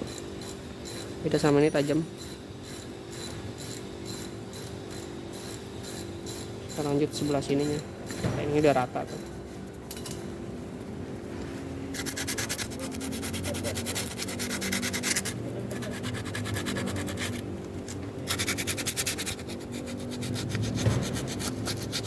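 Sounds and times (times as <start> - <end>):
sandpaper rubbing brake pad: 12.0 - 17.5, 18.2 - 22.0.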